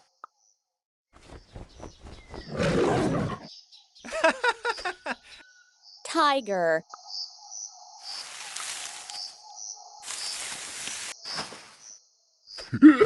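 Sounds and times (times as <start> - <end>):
insects chirping: 3.5 - 12.8.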